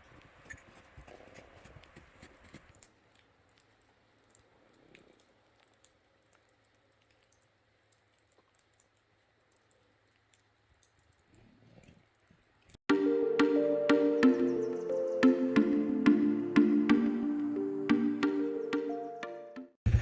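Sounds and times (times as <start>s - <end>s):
faint scattered clicks: 0.0s - 12.8s.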